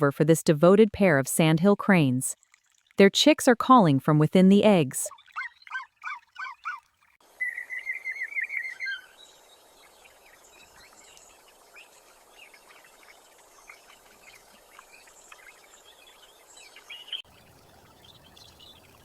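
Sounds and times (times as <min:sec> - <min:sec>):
high bird chirps: 0:07.4 - 0:09.2.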